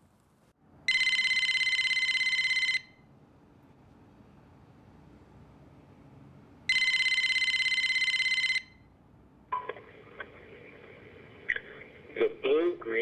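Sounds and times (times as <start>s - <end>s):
telephone ringing: 0.9s - 3.0s, 6.7s - 8.9s
thin phone line sound: 0.9s - 3.0s, 6.7s - 8.8s.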